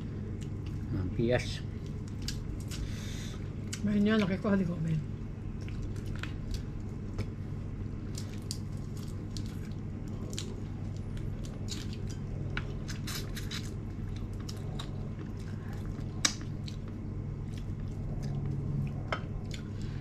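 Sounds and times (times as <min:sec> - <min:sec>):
steady low hum: 0:00.0 - 0:20.0
chewing and wet mouth smacks: 0:05.6 - 0:07.4, 0:08.0 - 0:19.9.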